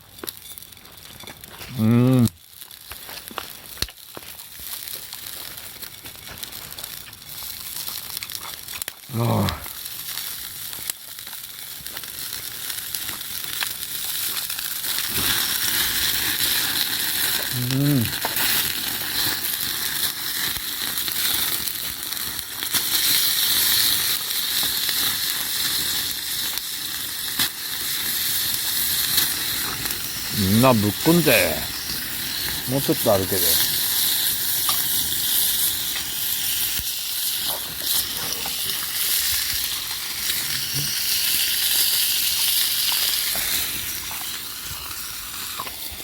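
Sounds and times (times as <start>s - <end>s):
meat sizzling over campfire: 0.0s - 46.0s.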